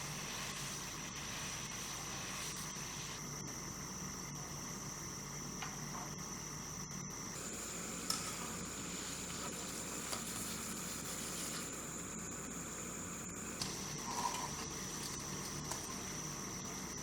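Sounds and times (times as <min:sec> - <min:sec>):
food sizzling in a pan: 0:07.4 - 0:16.0.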